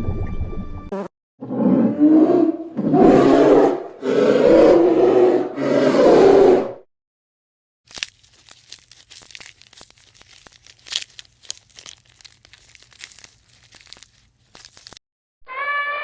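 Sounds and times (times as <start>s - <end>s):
crackling and rustling clicks: 7.9s - 15.0s.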